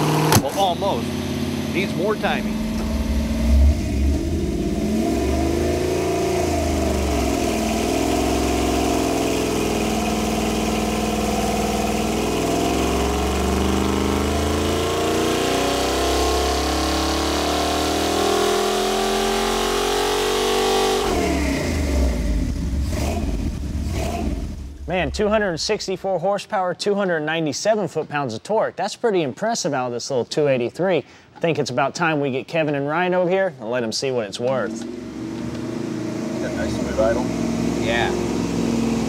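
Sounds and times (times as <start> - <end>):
engine revving under load: 0.0 - 25.9, 34.4 - 39.0.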